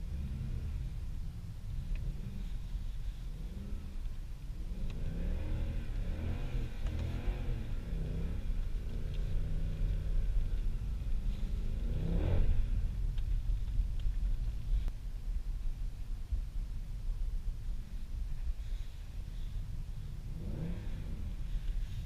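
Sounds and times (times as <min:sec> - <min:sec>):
car engine revving: 0:00.0 - 0:13.7, 0:20.2 - 0:22.0.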